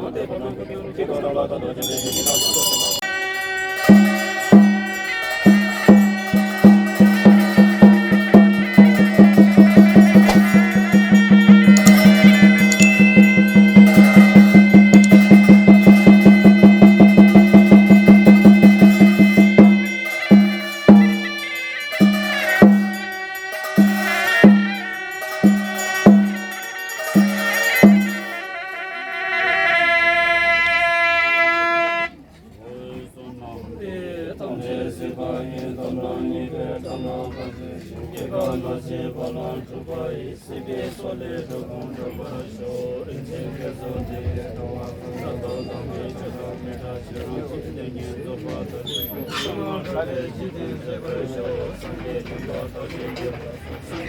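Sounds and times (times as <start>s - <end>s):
voices chanting: 1.6s - 54.0s
reedy wind instrument drone: 3.0s - 32.2s
drum beaten fast: 3.8s - 28.6s.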